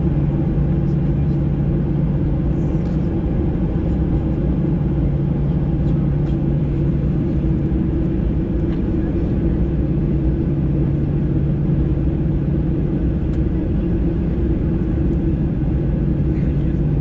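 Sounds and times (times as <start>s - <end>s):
airplane cabin hum: 0.0s - 17.0s.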